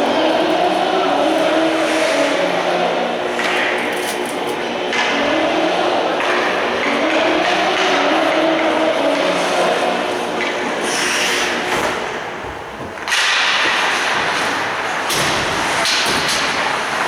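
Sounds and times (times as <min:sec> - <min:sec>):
hockey sticks and puck cracking: 0:03.4 - 0:05.3, 0:06.2 - 0:10.8, 0:12.9 - 0:17.0.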